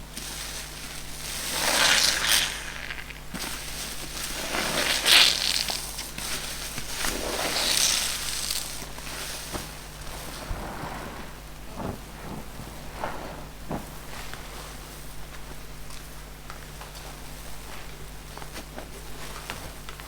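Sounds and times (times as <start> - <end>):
sponges being squeezed: 1.2 - 9.0
sponge squeaks: 1.4 - 3.3, 4.0 - 13.9.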